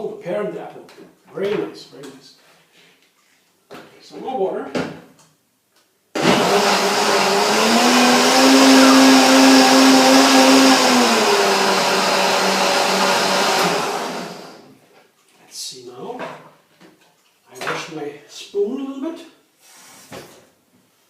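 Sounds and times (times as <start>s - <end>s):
blender running: 6.2s - 14.7s.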